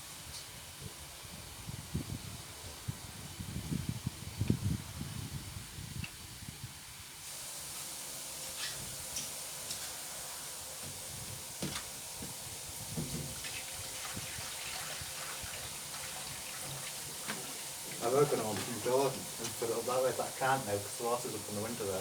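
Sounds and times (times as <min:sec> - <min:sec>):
water running: 0:07.2 - 0:22.0.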